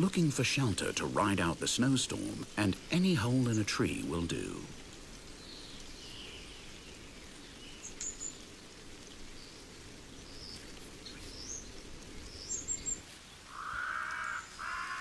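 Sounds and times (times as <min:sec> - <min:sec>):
faint high bird calls: 0:12.3 - 0:15.0.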